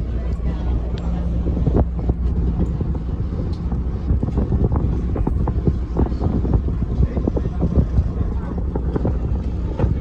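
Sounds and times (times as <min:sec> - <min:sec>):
ferry engine droning: 0:00.0 - 0:10.0
wind buffeting microphone: 0:00.0 - 0:10.0.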